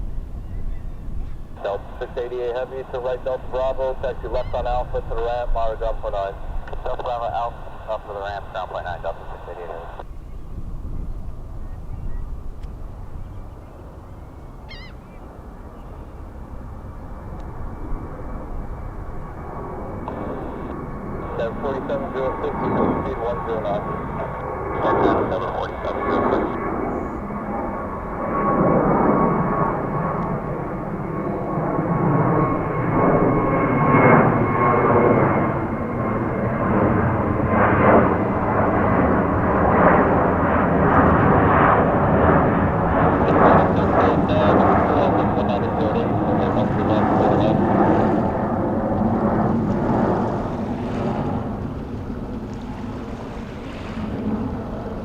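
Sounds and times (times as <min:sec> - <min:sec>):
distant jet engines rumbling: 0:00.0 - 0:55.0
warbling bird call: 0:13.2 - 0:16.3.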